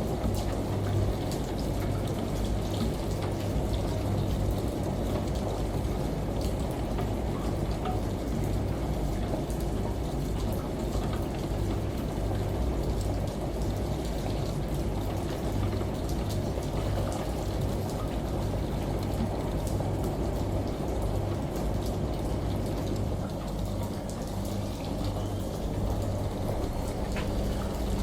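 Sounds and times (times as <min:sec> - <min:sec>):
faint water drips: 0:00.0 - 0:28.0
falling rain: 0:00.0 - 0:28.0
washing machine hum: 0:00.0 - 0:28.0.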